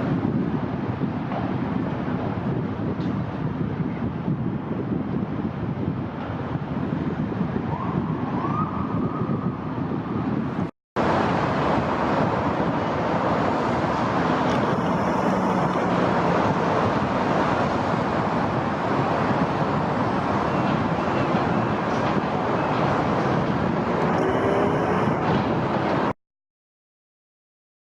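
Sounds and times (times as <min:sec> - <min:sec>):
wind on microphone: 0:00.0 - 0:26.1
distant city traffic: 0:06.0 - 0:26.1.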